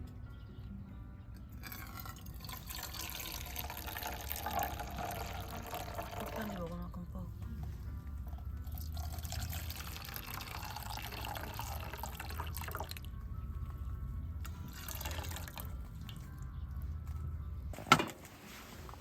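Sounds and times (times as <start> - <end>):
liquid being poured: 1.6 - 6.6, 8.7 - 13.1, 14.7 - 16.2.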